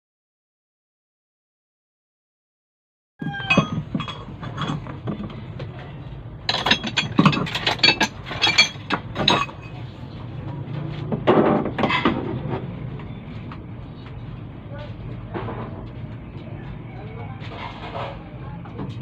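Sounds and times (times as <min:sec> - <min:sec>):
metal tools clanking: 0:03.2 - 0:05.8, 0:06.4 - 0:09.9.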